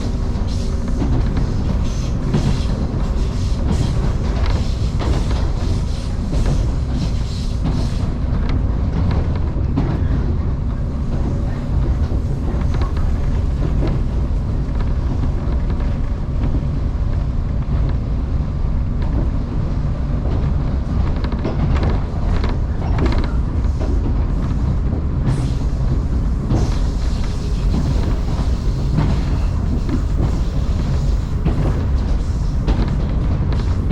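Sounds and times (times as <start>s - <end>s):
clacks over rail joints: 0.0s - 33.9s
train wheels rumbling on rail: 0.0s - 33.9s.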